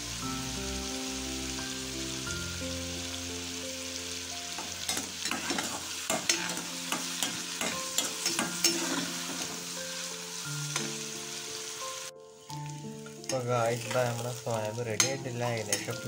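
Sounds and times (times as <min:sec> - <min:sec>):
food frying in oil sizzling: 0:00.0 - 0:16.0
skimmer scraping pan: 0:05.2 - 0:09.6.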